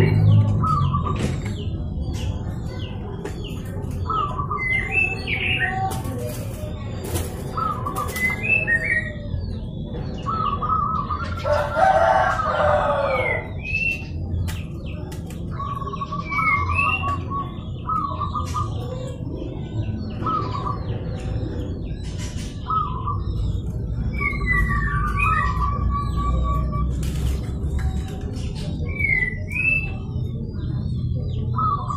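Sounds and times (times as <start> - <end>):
small birds chirping: 0.0 - 31.9
doves cooing: 3.5 - 14.1
rooster crowing: 11.4 - 13.4.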